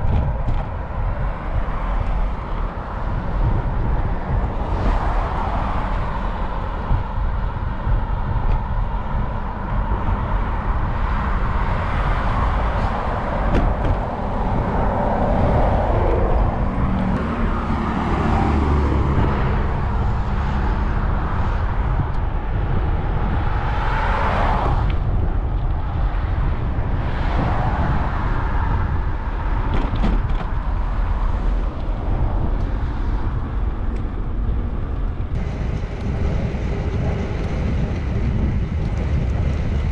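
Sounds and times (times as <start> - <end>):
cars passing: 0.0 - 21.9, 35.4 - 39.9
wind rumble on microphone: 0.0 - 39.9.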